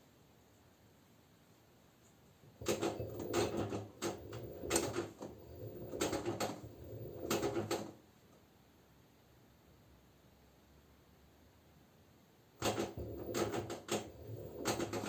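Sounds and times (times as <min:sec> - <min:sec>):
washing machine drum turning: 0:02.6 - 0:07.9, 0:12.6 - 0:15.0
laundry clunking and rattling: 0:02.6 - 0:08.0, 0:12.6 - 0:15.0.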